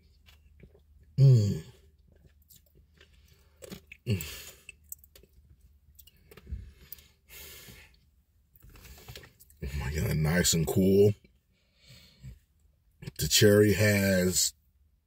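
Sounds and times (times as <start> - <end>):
chewing icy slush: 0.1 - 7.1.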